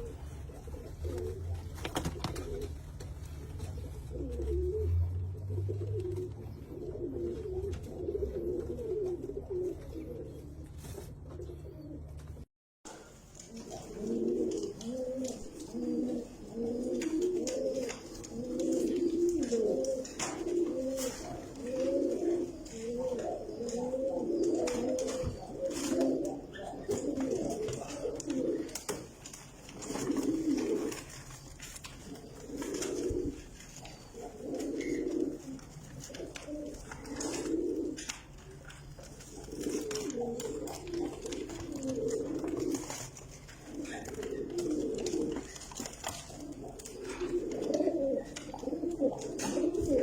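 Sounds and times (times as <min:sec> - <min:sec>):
pigeon cooing: 0:00.0 - 0:50.0.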